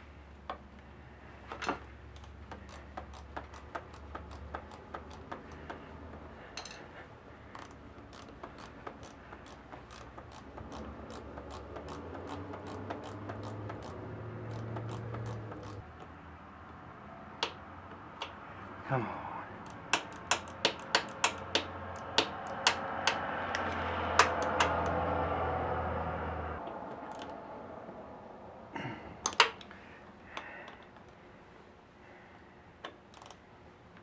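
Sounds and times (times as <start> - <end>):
ratchet wrench clicking: 2.1 - 5.9, 7.5 - 16.1, 19.6 - 25.0, 27.0 - 27.4, 32.8 - 33.4.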